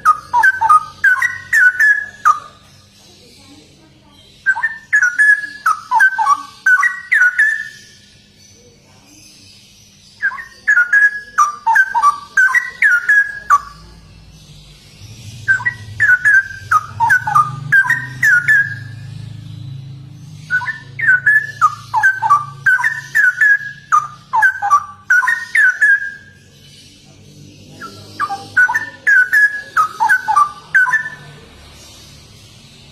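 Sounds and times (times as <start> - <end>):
bird singing whistled phrases: 0.0 - 2.9, 4.4 - 8.4, 10.1 - 14.0, 15.2 - 19.2, 20.3 - 27.0, 27.8 - 31.4
faint low hum: 0.0 - 32.9.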